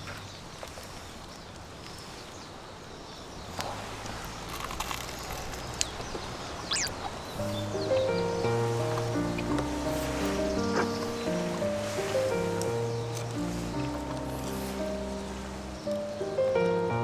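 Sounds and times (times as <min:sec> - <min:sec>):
faint clicks and rustles: 0:00.0 - 0:17.0
falling bird chirp: 0:05.4 - 0:17.0
steady low hiss: 0:05.4 - 0:17.0
background music: 0:07.4 - 0:17.0.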